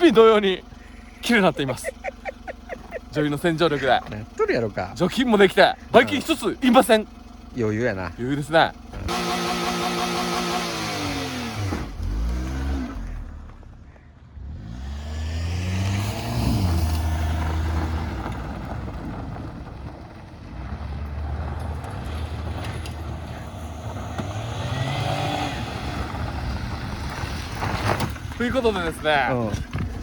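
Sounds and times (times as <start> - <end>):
car engine revving: 0.0 - 29.7.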